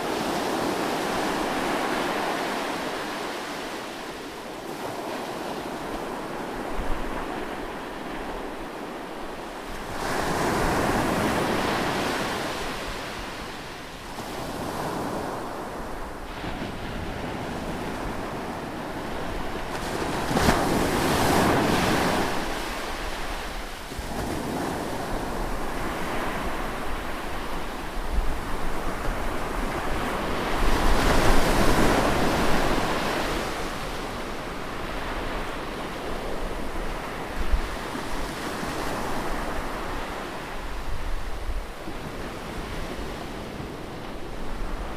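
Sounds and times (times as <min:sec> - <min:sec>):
ocean waves crashing: 0:00.0 - 0:44.9
soft wash of surf: 0:00.0 - 0:44.9.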